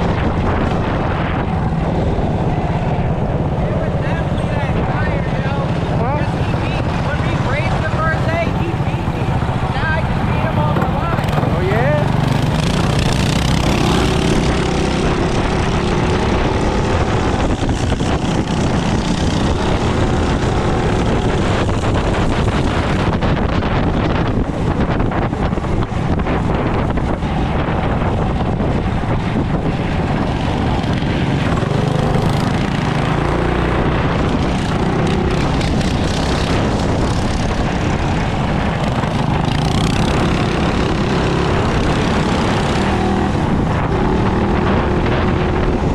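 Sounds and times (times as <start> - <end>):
wind buffeting microphone: 0.0 - 45.9
small engine running: 3.7 - 22.9.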